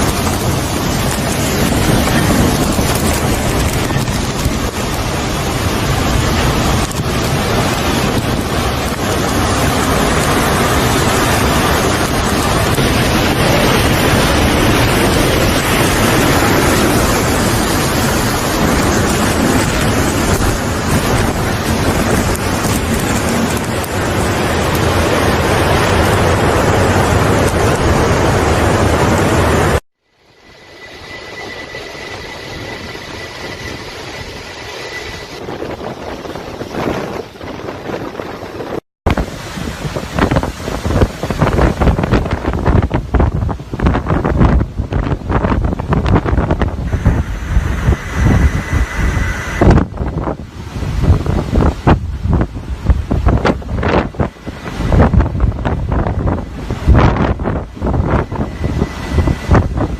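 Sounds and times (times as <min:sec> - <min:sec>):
storm rushing noise: 0:00.0 - 0:59.9
thin high whine: 0:30.0 - 0:36.9, 0:46.2 - 0:50.7.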